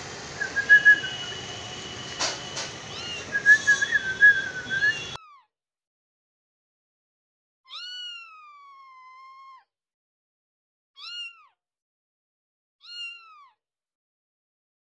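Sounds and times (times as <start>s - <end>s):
cat meowing: 2.9s - 3.9s, 7.7s - 9.6s, 11.0s - 11.6s.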